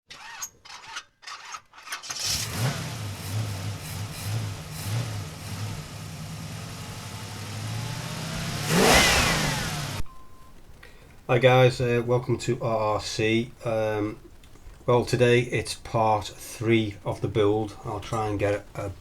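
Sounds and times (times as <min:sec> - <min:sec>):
engine starting and idling: 0:01.9 - 0:10.0
engine revving: 0:02.1 - 0:10.0.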